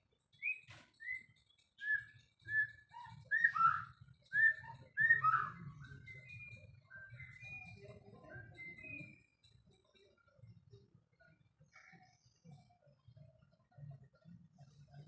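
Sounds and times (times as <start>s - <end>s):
bird singing whistled notes: 0.3s - 9.4s.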